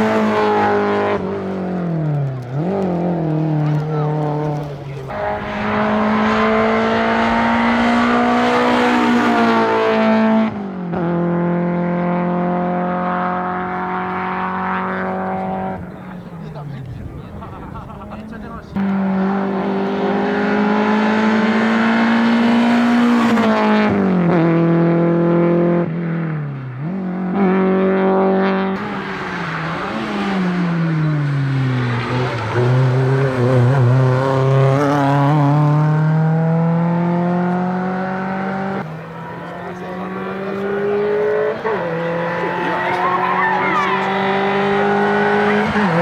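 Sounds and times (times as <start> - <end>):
racing car engines at full throttle: 0.0 - 46.0.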